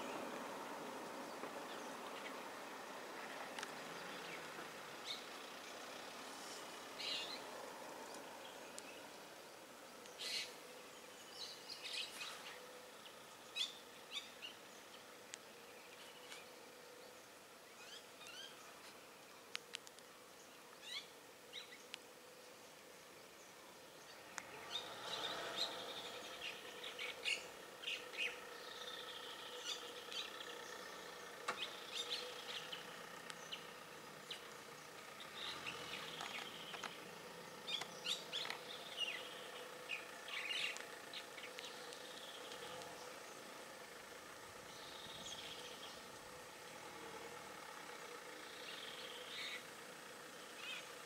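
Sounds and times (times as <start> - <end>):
faint low hum: 0.0 - 51.0
forest birds chirping: 0.0 - 51.0.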